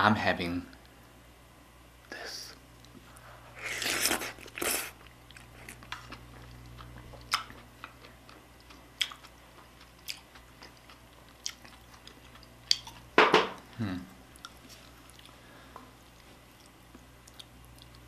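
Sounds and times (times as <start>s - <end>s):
wet chewing sounds: 2.8s - 13.1s, 14.3s - 18.0s.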